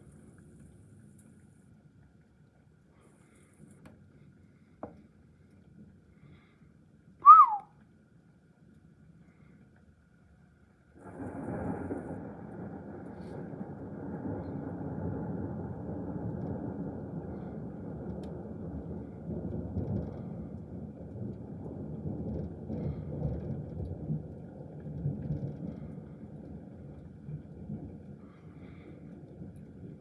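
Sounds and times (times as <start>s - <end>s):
rolling thunder: 11.0s - 30.0s.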